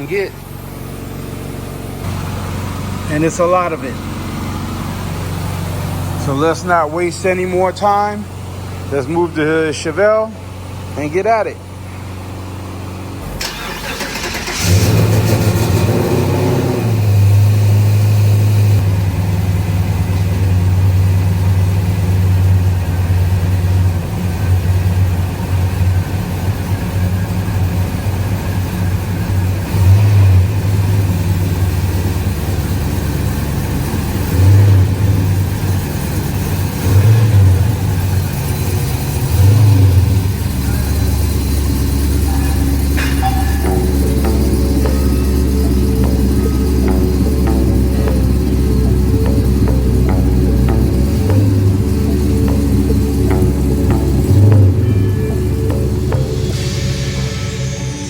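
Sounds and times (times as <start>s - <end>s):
car engine starting and idling: 0.0s - 58.0s
engine revving: 13.2s - 27.6s, 29.0s - 58.0s.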